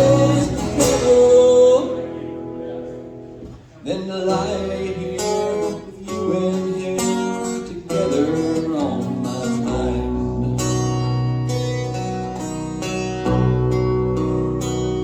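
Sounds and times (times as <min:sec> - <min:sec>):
person singing: 0:00.0 - 0:02.1
acoustic guitar strumming: 0:00.0 - 0:15.0.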